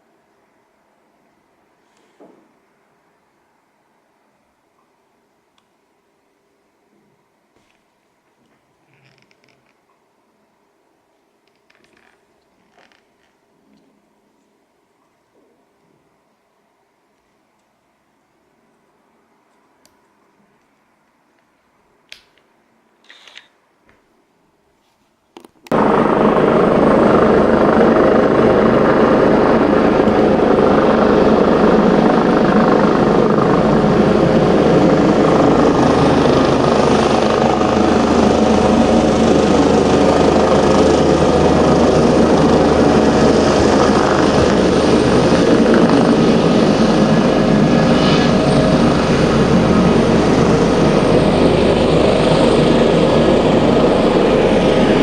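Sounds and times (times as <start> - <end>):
helicopter running: 25.7 - 55.0.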